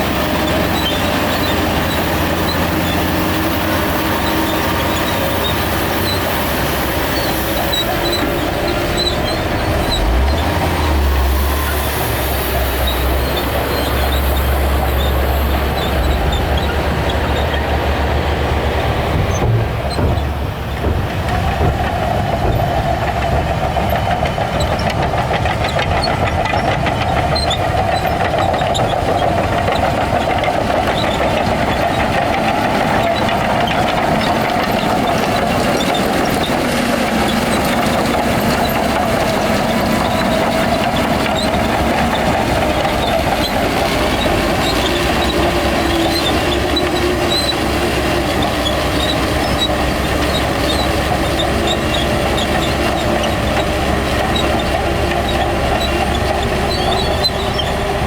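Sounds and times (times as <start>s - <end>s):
bulldozer diesel engine: 0.0s - 58.0s
crawler tracks clanking: 0.0s - 58.0s
rattling clatter: 18.9s - 58.0s.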